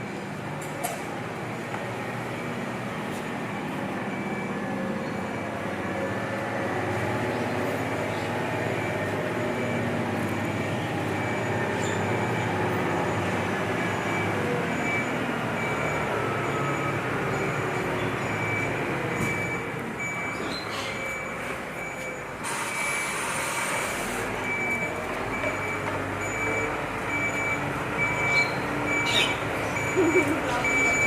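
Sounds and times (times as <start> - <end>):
truck diesel engine droning: 0.0 - 31.0.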